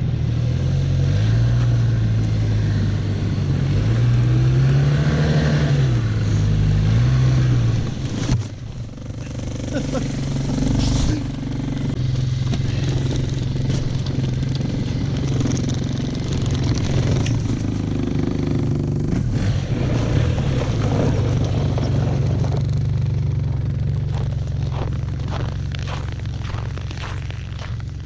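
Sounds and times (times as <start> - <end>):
snowmobile engine running: 0.0 - 28.0.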